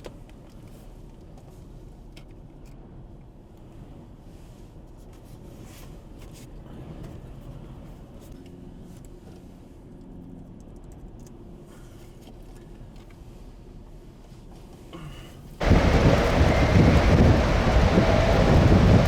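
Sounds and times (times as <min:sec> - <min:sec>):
faint hum: 0:14.9 - 0:19.0
wind buffeting microphone: 0:15.6 - 0:19.0.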